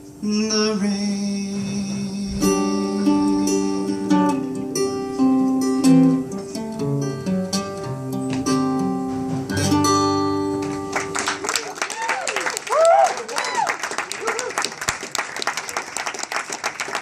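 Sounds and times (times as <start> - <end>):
acoustic guitar playing: 0.0 - 11.6.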